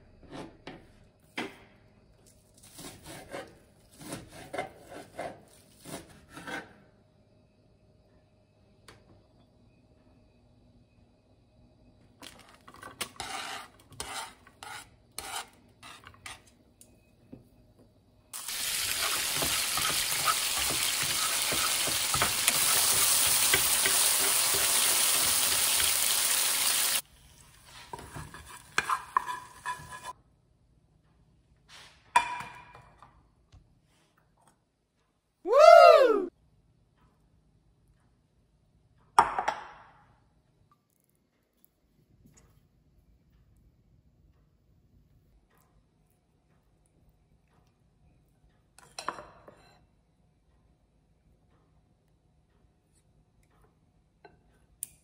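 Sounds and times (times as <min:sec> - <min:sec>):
onions sizzling in hot oil: 0:18.4 - 0:27.0.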